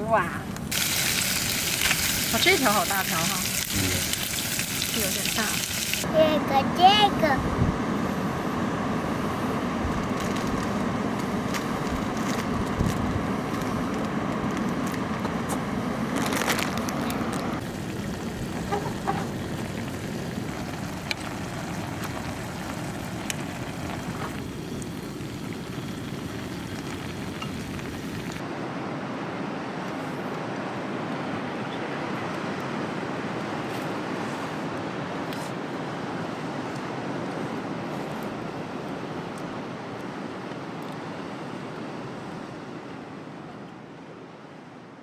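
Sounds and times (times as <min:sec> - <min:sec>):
fish frying in hot oil: 0:00.7 - 0:06.1, 0:17.6 - 0:28.4.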